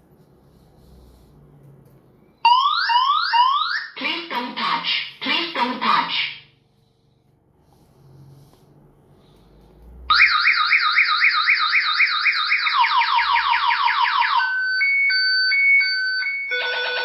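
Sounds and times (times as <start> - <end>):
electronic alarm siren: 2.4 - 4.0, 10.1 - 17.0.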